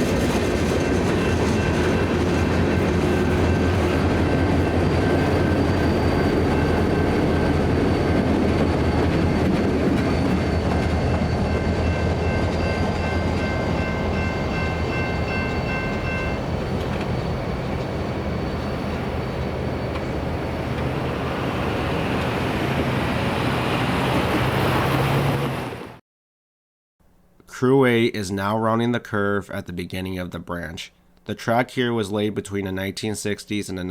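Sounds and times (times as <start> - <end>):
diesel locomotive rumble: 0.0 - 26.0
railcars running on rails: 0.0 - 26.0
high steady ringing tones: 0.7 - 20.7.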